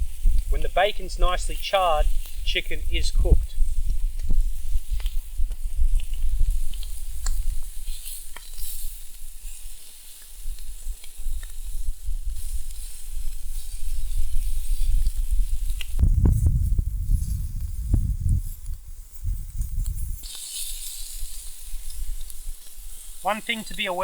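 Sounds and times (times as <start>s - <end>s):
wind buffeting microphone: 0.0s - 9.7s, 10.4s - 23.2s
food sizzling in oil: 3.6s - 16.0s, 19.9s - 24.0s.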